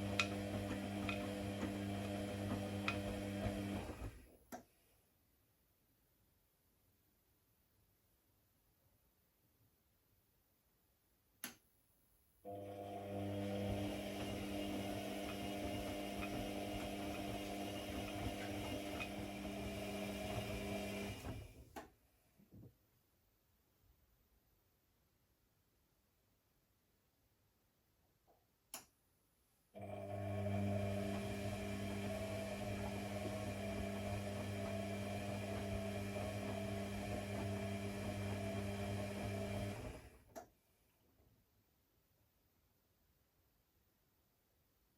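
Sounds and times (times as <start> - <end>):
electric motor humming: 0.0 - 4.0, 12.8 - 21.4, 29.9 - 40.0.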